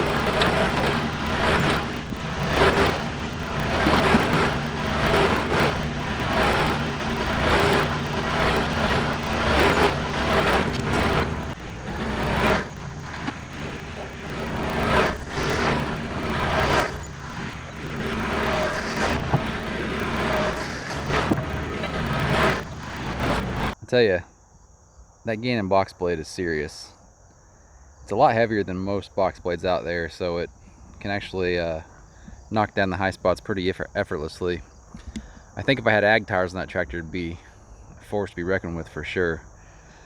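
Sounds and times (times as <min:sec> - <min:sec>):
blade scraping through dirt: 0:00.0 - 0:23.8
tractor diesel engine running: 0:00.0 - 0:23.8.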